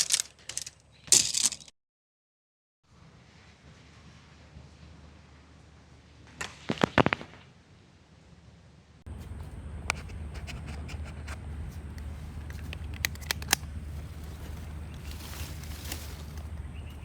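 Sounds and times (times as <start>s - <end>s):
loud sharp pops: 6.4s - 7.5s
steady low rumble: 9.0s - 17.0s
campfire crackling and popping: 11.8s - 16.6s.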